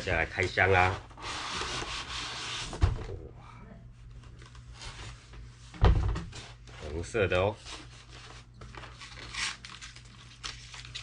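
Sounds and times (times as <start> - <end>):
cardboard packaging rustling: 7.6 - 11.0.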